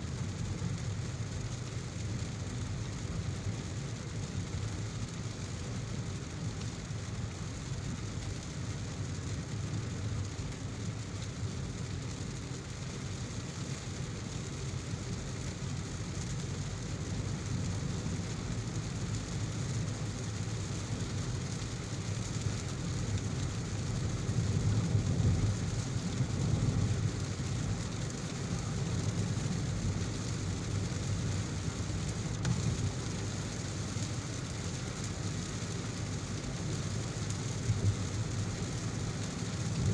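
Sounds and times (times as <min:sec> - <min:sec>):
heavy rain falling: 0:09.0 - 0:39.9.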